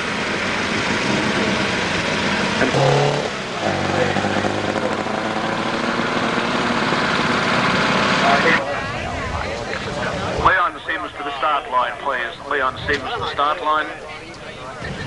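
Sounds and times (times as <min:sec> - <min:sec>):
racing car engine: 0:00.0 - 0:08.9.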